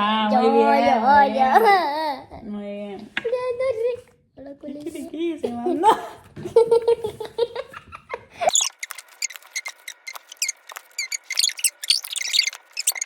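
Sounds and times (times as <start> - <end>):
high-pitched squeaks and chirps: 8.5 - 13.0.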